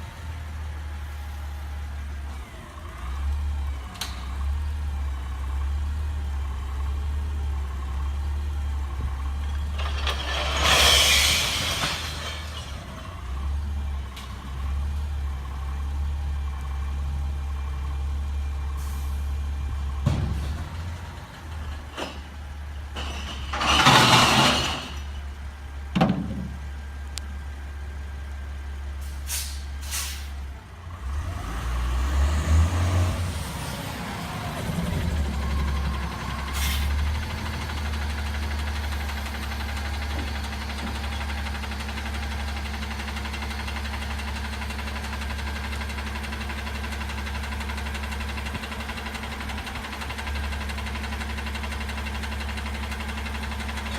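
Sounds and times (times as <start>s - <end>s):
garbage truck idling: 0.0s - 31.1s, 33.4s - 53.9s.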